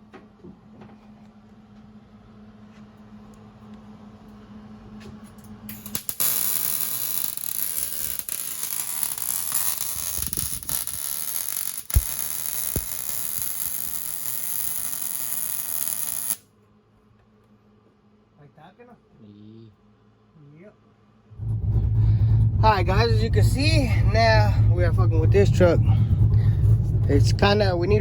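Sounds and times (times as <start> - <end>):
welding arc crackling hiss: 5.7 - 16.4.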